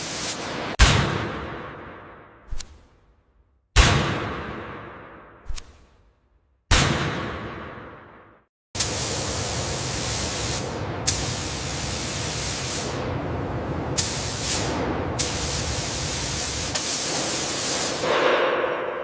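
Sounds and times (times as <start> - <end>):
dense spraying hiss: 14.0 - 18.1.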